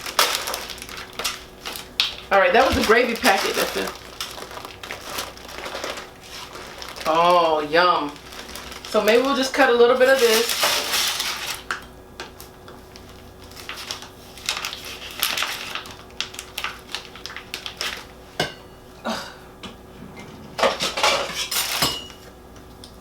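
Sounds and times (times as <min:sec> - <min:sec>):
knife and fork scraping a plate: 0:20.6 - 0:22.2.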